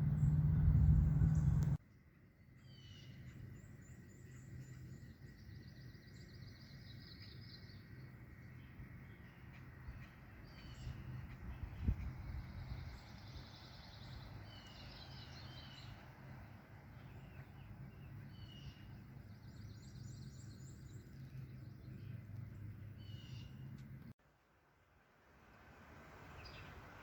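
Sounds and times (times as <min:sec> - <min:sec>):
steady low hum: 0:00.0 - 0:01.8
songbirds trilling and chirping: 0:00.0 - 0:24.1, 0:26.3 - 0:27.0.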